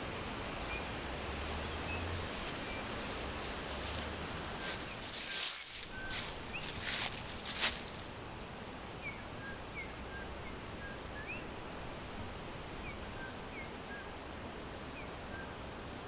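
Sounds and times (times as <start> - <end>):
steady background hiss: 0.0 - 16.0
small birds chirping: 0.6 - 8.3.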